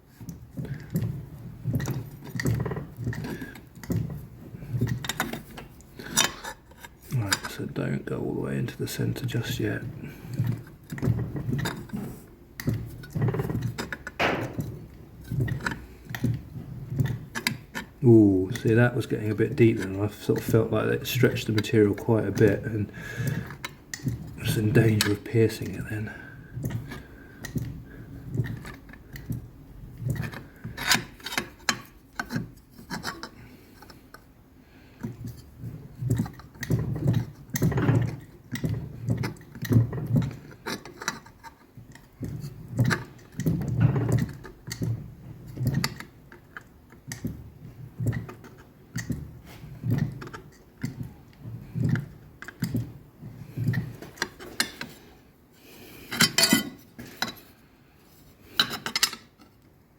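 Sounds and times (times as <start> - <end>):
metal rubbing and scraping: 0.0 - 59.5
press ram clunking on steel: 8.9 - 34.2.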